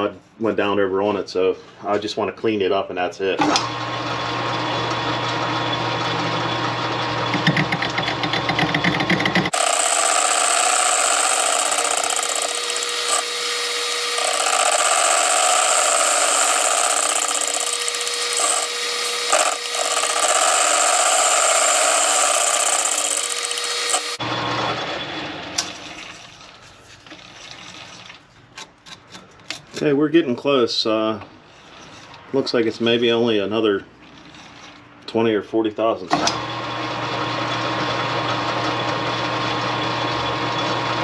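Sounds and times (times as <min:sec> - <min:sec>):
metal lathe cutting: 0:09.5 - 0:24.7.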